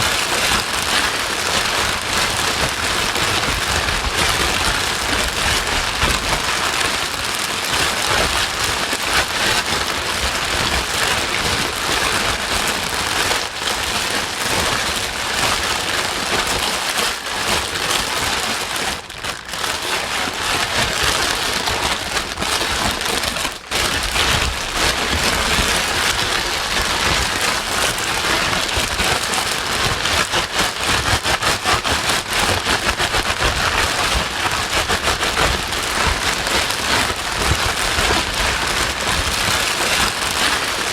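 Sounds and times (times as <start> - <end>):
rain-like white noise: 0.0 - 40.9.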